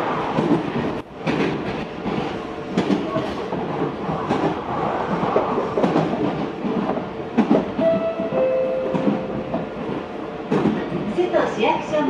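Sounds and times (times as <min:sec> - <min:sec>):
train interior rumble: 0:00.0 - 0:12.0
brief steady tones: 0:07.8 - 0:09.6.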